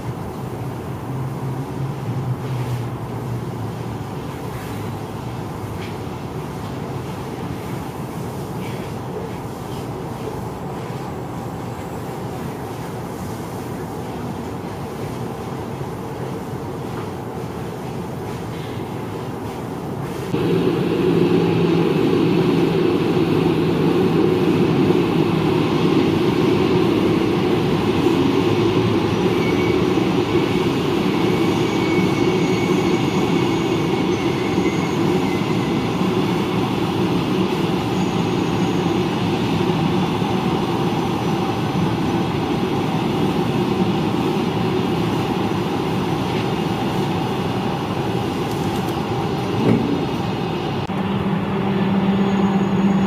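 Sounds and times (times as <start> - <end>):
train wheels rumbling on rail: 0.0 - 53.0
faint high wheel squeal: 28.6 - 36.8, 37.5 - 39.3, 51.9 - 53.0.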